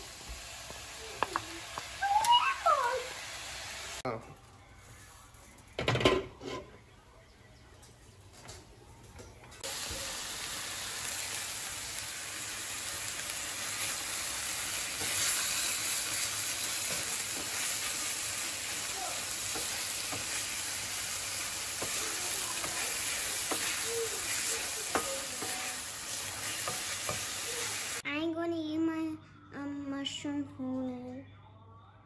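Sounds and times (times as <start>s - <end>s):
mushrooms sizzling in a pan: 0.0s - 4.0s, 9.6s - 28.0s
wooden spatula stirring: 21.3s - 27.3s.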